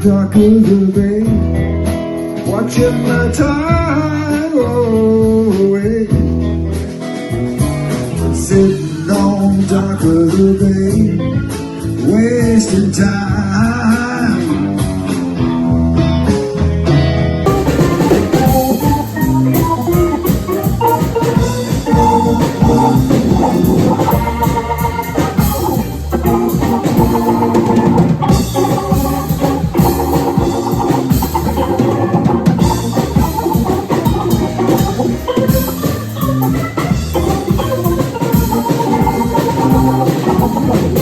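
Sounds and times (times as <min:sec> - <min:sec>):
organ chords: 0:14.4 - 0:41.0
drum kit beat: 0:17.5 - 0:41.0.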